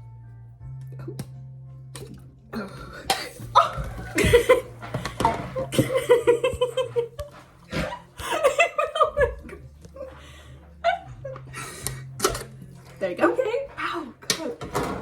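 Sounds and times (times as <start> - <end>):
woman laughing and squealing: 3.5 - 4.7.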